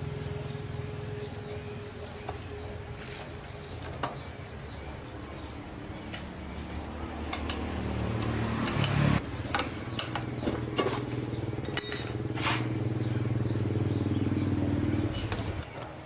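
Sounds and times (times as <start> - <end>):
metal tools clinking: 5.3 - 9.0, 10.8 - 12.7, 15.1 - 15.5
motorcycle engine running: 5.8 - 15.7.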